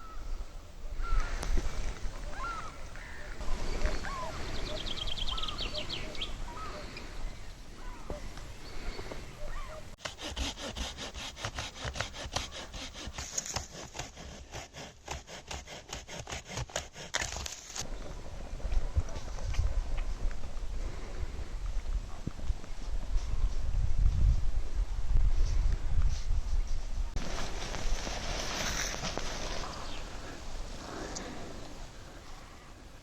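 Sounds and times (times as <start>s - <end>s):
birds calling: 0.0s - 13.3s, 27.2s - 33.0s
hand saw cutting wood: 10.0s - 17.8s.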